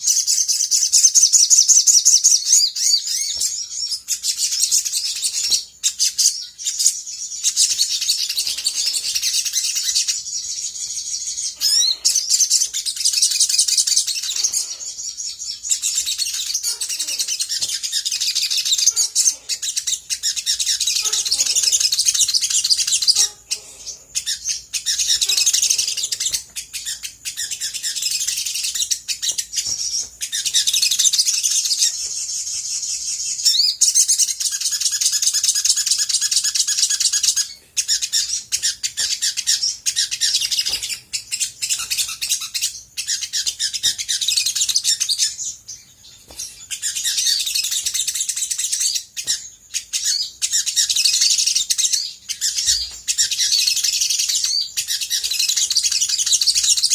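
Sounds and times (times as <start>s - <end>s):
bird singing chattering song: 0.0s - 56.9s.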